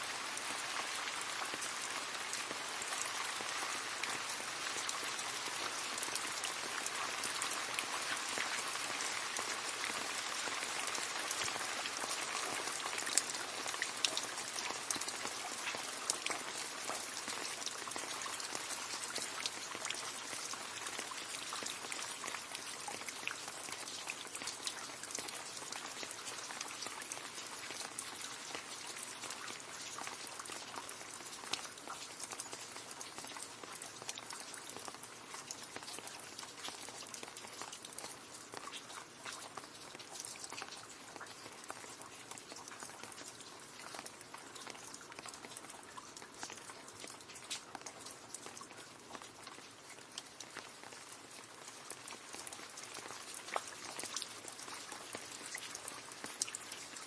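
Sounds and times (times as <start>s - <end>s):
rain falling into a puddle: 0.0s - 57.0s.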